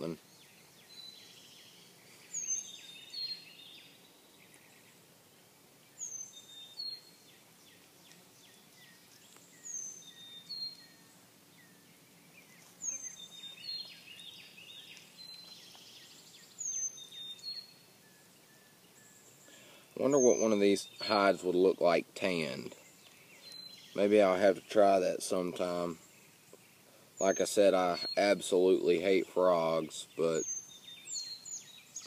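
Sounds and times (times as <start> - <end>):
faint bird chirps: 0.0 - 32.0
songbird singing two-note phrase: 20.2 - 21.1.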